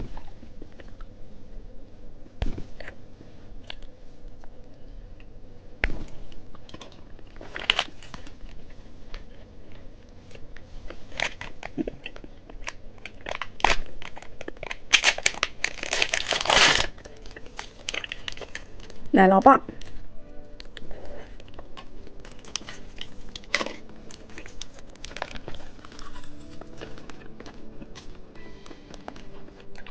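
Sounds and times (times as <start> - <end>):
candy wrapper crinkling and tearing: 6.8 - 8.7, 11.1 - 19.1, 20.6 - 29.9
wrapper rustling bursts: 13.2 - 19.2.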